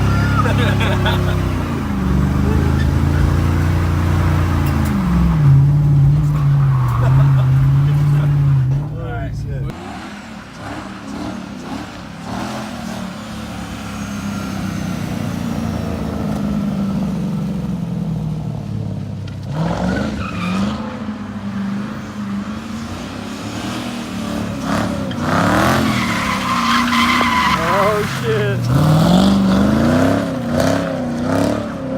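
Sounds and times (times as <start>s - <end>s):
tyre noise: 0.0s - 9.8s
car engine revving high: 0.0s - 17.6s, 19.4s - 31.9s.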